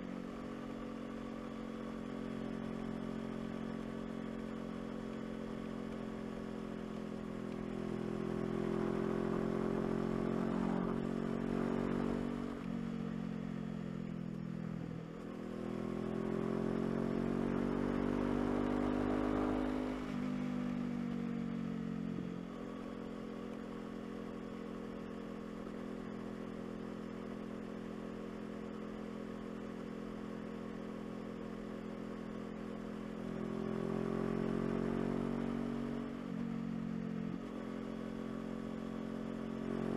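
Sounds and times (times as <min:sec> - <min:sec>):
motorcycle engine through gears: 0:00.4 - 0:13.4, 0:14.0 - 0:22.4.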